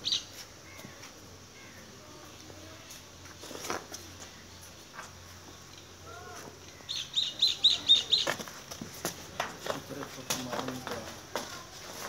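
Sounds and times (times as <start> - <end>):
small bird chirping: 0.0 - 2.8, 4.2 - 8.4.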